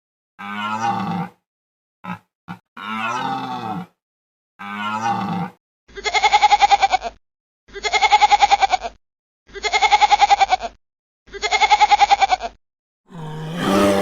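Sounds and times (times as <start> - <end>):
quavering bleat: 0.4 - 1.4, 2.0 - 3.9, 4.6 - 7.2, 13.1 - 14.0
animal calling: 13.1 - 14.0
animal grunts: 13.1 - 14.0.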